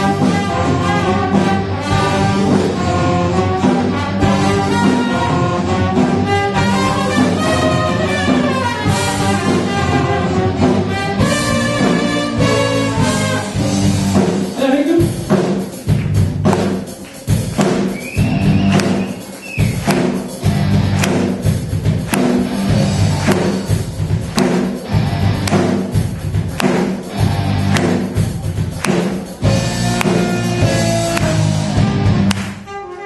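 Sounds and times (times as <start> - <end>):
brass band playing funk: 0.0 - 33.0.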